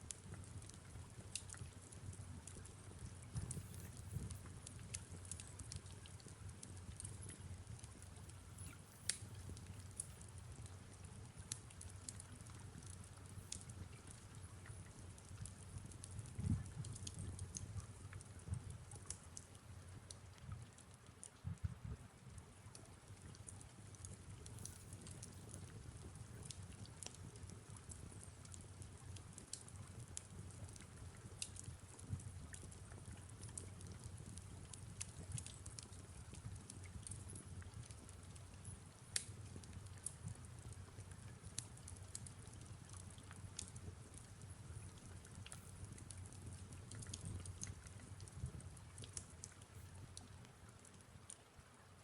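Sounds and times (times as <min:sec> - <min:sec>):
soft hiss of rain: 0:00.0 - 0:52.0
fireplace crackling: 0:00.1 - 0:16.1, 0:24.0 - 0:51.6
soft low rumble: 0:02.3 - 0:19.0.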